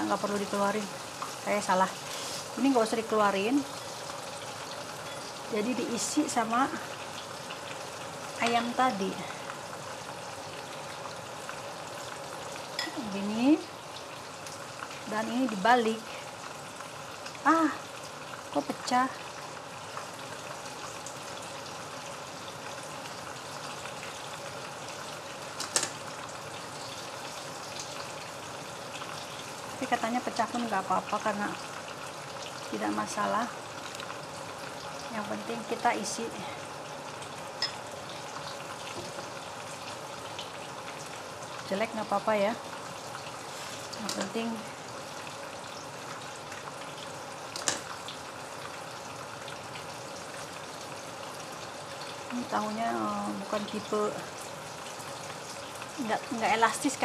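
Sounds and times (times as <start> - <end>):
tofu sizzling in hot oil: 0.0 - 57.0.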